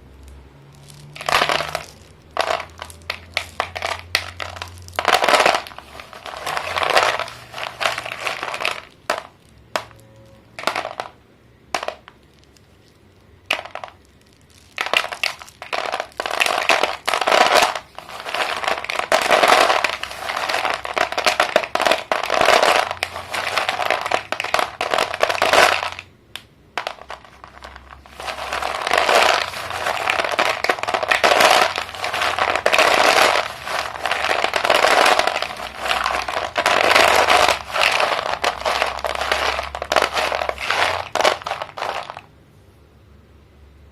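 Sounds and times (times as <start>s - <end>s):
chalk crunching and snapping: 13.6s - 26.0s, 26.8s - 42.2s.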